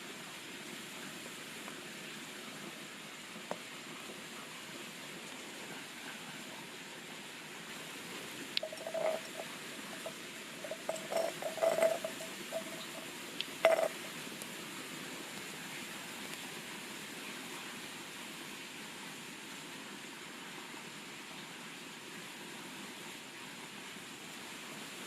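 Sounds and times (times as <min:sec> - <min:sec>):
light knocks and clinks: 0:08.6 - 0:14.1.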